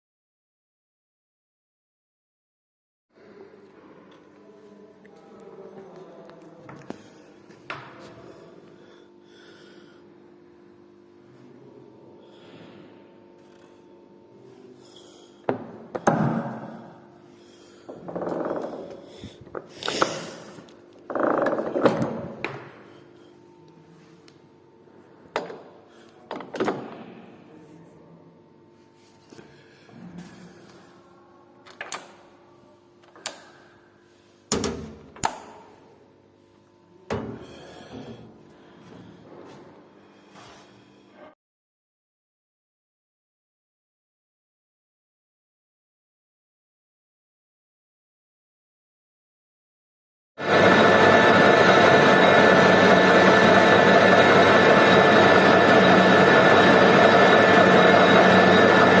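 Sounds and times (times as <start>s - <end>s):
faint steady hum: 3.2s - 26.3s
lathe humming with whining tones: 50.4s - 59.0s.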